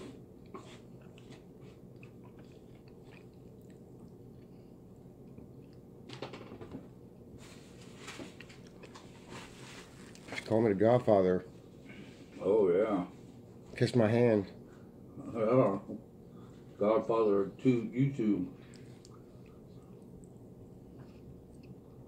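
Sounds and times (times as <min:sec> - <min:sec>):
chewing and crunching food: 0:00.0 - 0:06.1, 0:07.1 - 0:11.0, 0:18.5 - 0:22.0.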